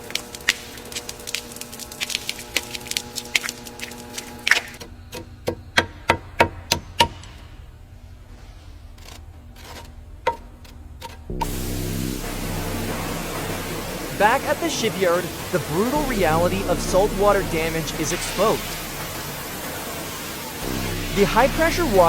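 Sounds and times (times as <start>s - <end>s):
low hum: 11.3s - 22.0s.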